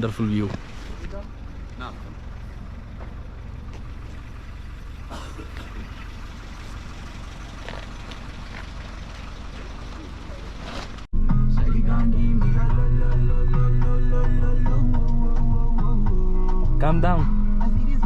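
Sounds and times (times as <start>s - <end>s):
car engine and road noise: 0.0s - 18.0s
loud music: 11.2s - 18.0s.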